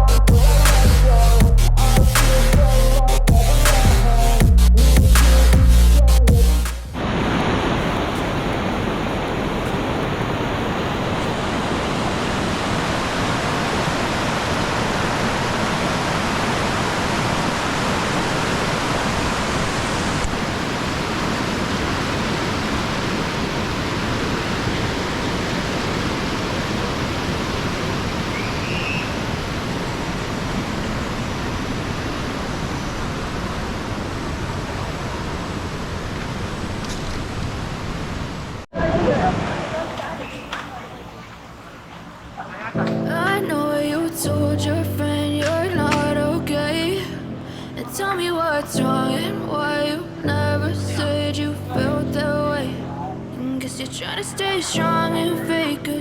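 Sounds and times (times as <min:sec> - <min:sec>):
waterfall rushing: 0:06.6 - 0:40.4.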